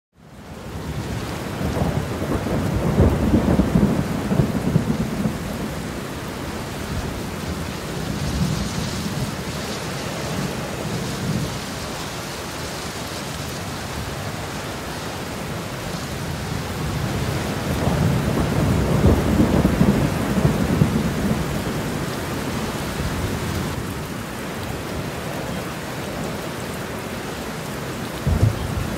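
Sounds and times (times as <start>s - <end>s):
steady rain falling: 0.2s - 28.9s
low rolls of thunder: 0.8s - 9.5s, 16.1s - 24.0s, 28.2s - 28.9s.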